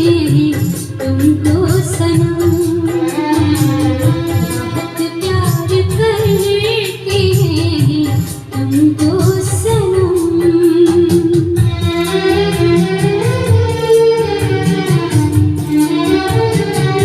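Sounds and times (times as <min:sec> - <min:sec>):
song on record player: 0:00.0 - 0:17.0.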